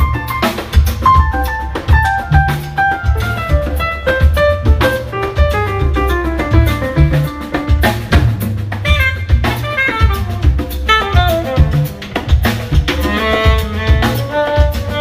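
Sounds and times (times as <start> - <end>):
live jazz band playing: 0.0 - 15.0.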